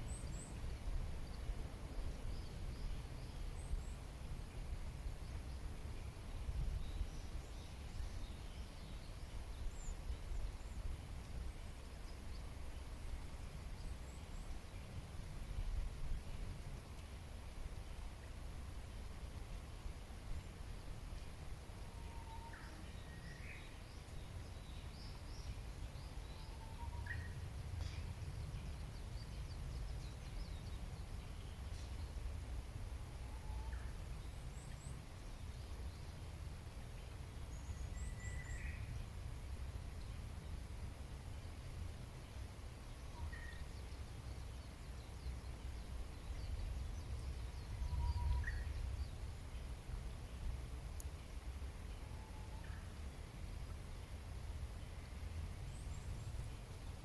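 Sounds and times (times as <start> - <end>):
low outdoor rumble: 0.0 - 57.0
whistled bird notes: 47.6 - 48.8.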